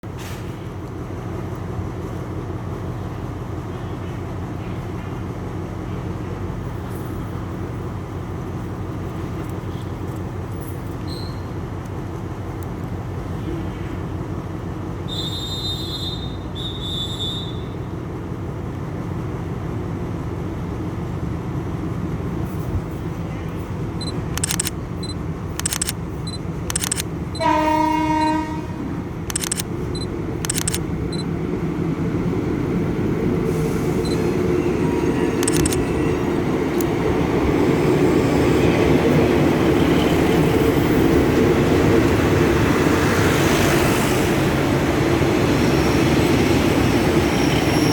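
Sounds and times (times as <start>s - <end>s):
diesel train rumbling: 0.0s - 47.9s
train horn: 27.4s - 29.0s.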